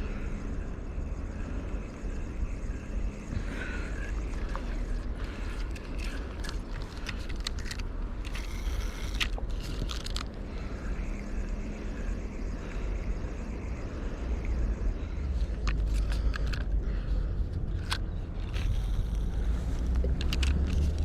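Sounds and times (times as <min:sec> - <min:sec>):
sharp clicks and scrapes: 0:04.4 - 0:10.4, 0:15.4 - 0:16.8, 0:17.4 - 0:21.0.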